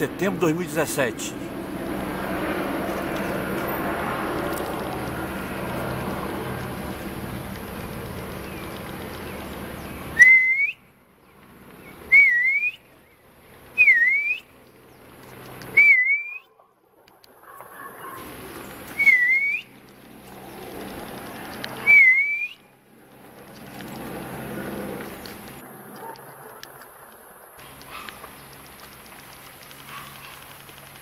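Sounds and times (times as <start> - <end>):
distant helicopter drone: 0.0 - 31.0
bird whistled call: 10.2 - 10.8, 12.1 - 12.9, 13.8 - 14.5, 15.7 - 16.5, 18.9 - 19.7, 21.8 - 22.6.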